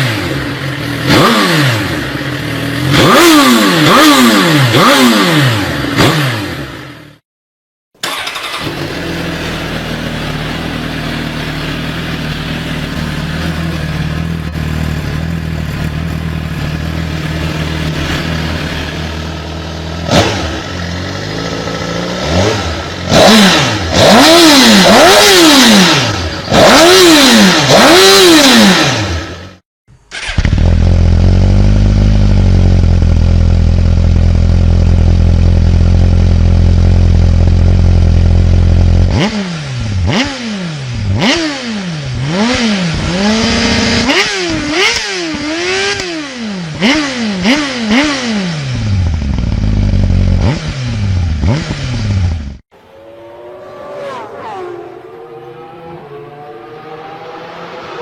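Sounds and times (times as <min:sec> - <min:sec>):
motorcycle engine idling and revving: 0:00.0 - 0:07.2, 0:08.0 - 0:58.0
deeper motorcycle idling: 0:08.4 - 0:23.1, 0:30.6 - 0:39.1.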